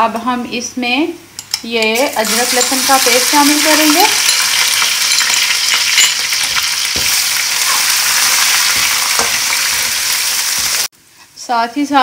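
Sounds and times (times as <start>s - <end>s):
food sizzling in hot oil: 2.0s - 10.9s
metal spoon knocking on pan: 3.9s - 7.2s.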